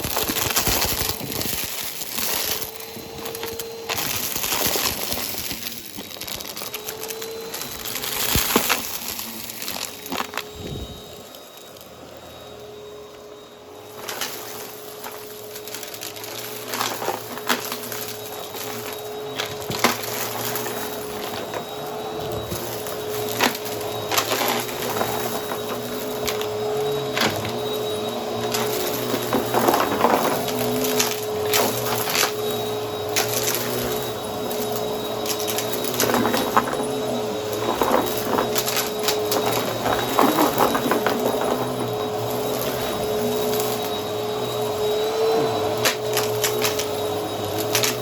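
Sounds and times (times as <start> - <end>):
debris crunching and clicking: 0.0 - 10.6, 14.0 - 43.9, 45.8 - 48.0
vacuum cleaner motor whine: 0.0 - 48.0.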